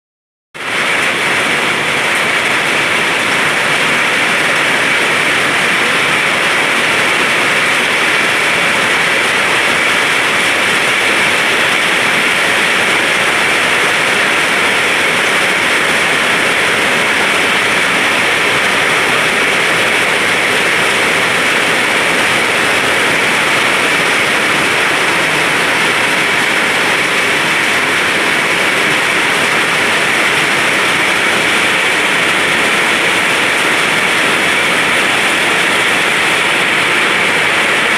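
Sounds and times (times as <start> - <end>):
rain falling steadily: 0.6 - 37.9.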